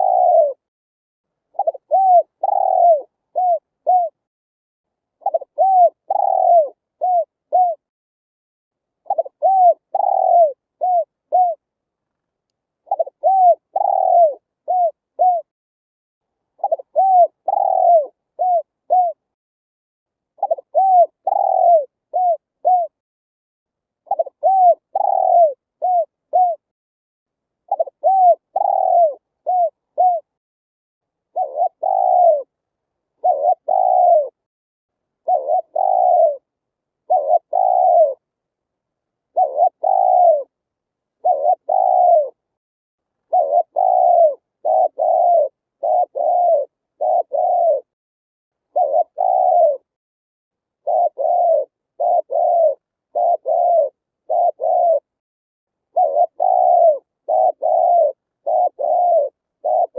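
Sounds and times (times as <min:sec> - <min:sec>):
dove cooing: 0:00.0 - 0:00.7, 0:01.5 - 0:04.2, 0:05.2 - 0:07.9, 0:09.0 - 0:11.7, 0:12.8 - 0:15.5, 0:16.6 - 0:19.3, 0:20.4 - 0:23.0, 0:24.0 - 0:26.7, 0:27.7 - 0:30.4, 0:31.3 - 0:32.6, 0:33.2 - 0:34.4, 0:35.2 - 0:38.3, 0:39.3 - 0:40.6, 0:41.2 - 0:42.4, 0:43.3 - 0:48.0, 0:48.7 - 0:50.0, 0:50.8 - 0:55.2, 0:55.9 - 0:59.9.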